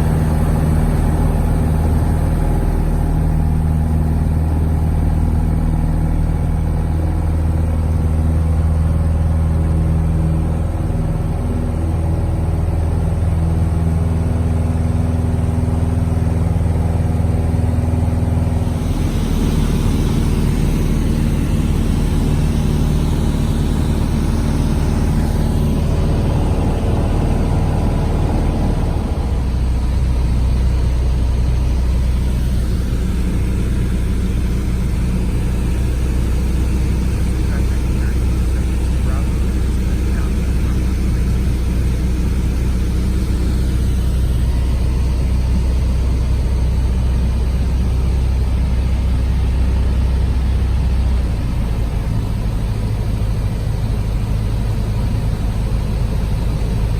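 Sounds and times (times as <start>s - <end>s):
small airplane engine droning: 0.0s - 56.9s
rush of air noise: 18.6s - 29.8s.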